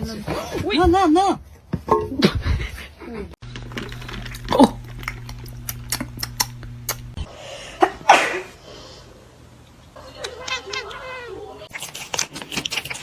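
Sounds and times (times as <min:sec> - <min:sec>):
steady low hum: 0:03.4 - 0:07.3.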